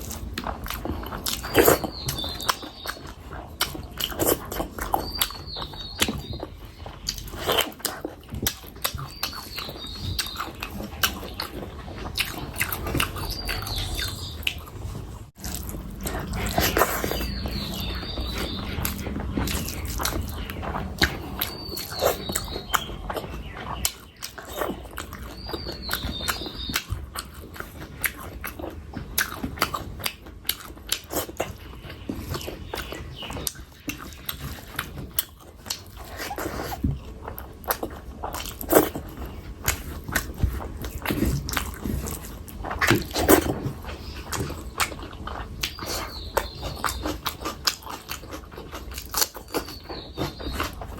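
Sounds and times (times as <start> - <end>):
wet chewing and smacking: 0.0 - 50.9.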